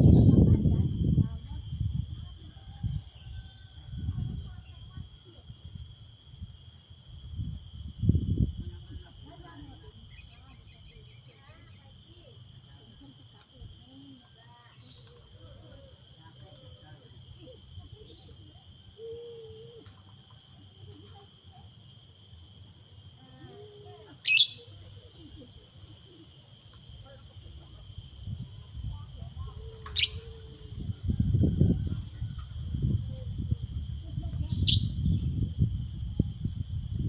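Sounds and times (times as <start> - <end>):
high insect drone: 0.0 - 37.0
bird sharp rising calls: 24.2 - 24.8, 29.9 - 31.0.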